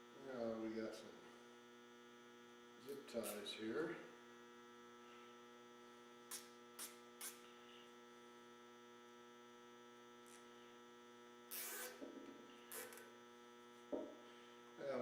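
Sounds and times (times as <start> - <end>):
steady electrical hum: 0.0 - 15.0
zip tie pulled tight: 6.3 - 7.5, 11.5 - 12.1, 12.7 - 13.1.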